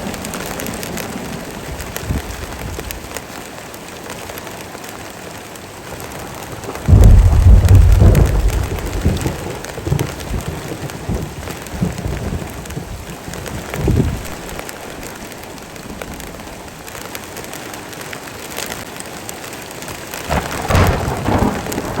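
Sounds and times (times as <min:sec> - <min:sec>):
thunder crack and rumble: 0:00.0 - 0:03.2, 0:05.9 - 0:17.6, 0:20.2 - 0:22.0
heavy rain falling: 0:00.0 - 0:22.0.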